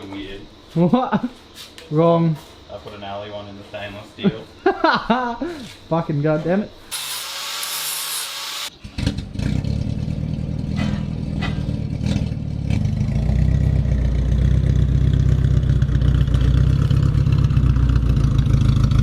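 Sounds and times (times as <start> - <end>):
car engine through exhaust: 8.7 - 19.0.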